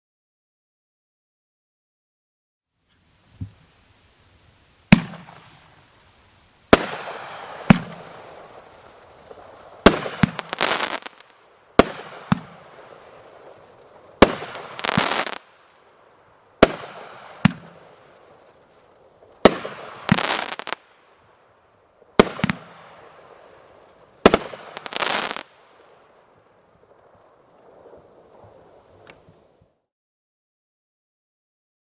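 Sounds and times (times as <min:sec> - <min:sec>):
firework crackling: 0:02.9 - 0:29.8
firework bangs: 0:03.1 - 0:29.6
firework launch thumps: 0:03.2 - 0:10.9.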